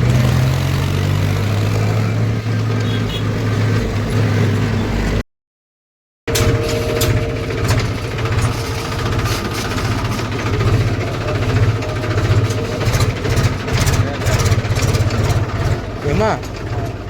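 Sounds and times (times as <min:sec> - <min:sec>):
tractor engine running: 0:06.3 - 0:17.0.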